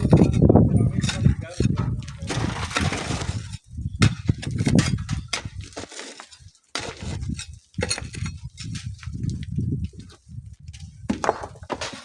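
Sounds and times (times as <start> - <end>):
shovelling gravel crunching: 0.0 - 3.6, 4.2 - 9.2
wind gusts on microphone: 0.0 - 5.8, 7.0 - 11.6.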